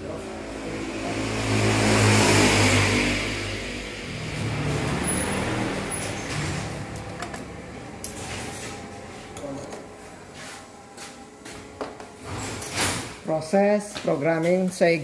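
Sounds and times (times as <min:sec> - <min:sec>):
car engine revving: 0:00.0 - 0:10.9.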